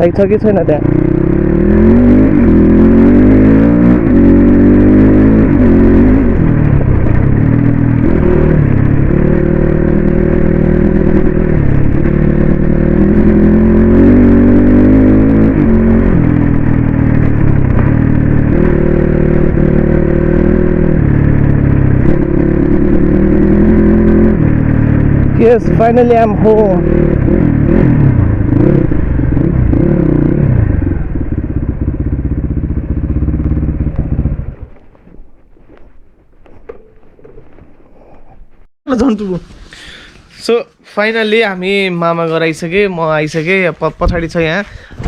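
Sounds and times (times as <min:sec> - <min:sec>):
dirt bike engine revving: 0:00.0 - 0:34.9.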